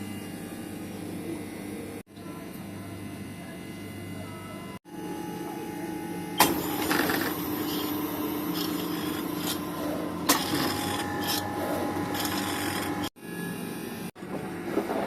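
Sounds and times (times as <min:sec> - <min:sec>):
ice cream machine motor humming: 0:00.0 - 0:15.0.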